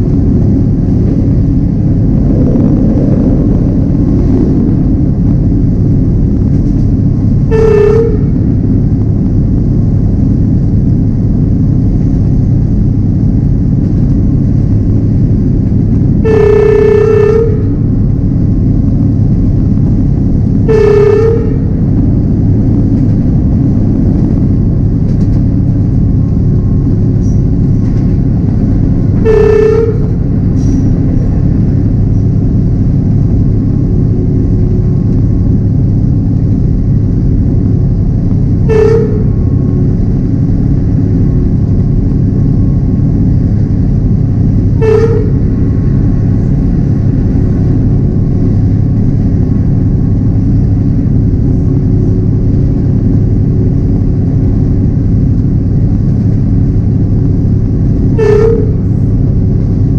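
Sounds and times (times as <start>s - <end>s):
train wheels rumbling on track: 0.0s - 59.9s
train horn: 7.3s - 8.9s, 16.0s - 18.9s, 20.5s - 23.1s, 25.6s - 32.8s, 38.3s - 48.7s, 57.9s - 59.8s.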